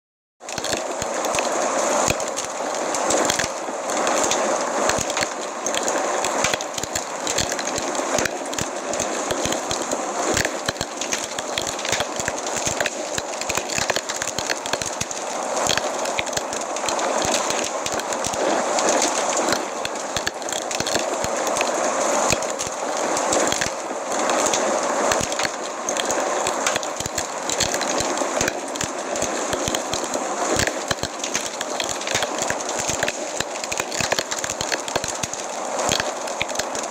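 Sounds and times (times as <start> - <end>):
fire crackling and popping: 0.4 - 36.9.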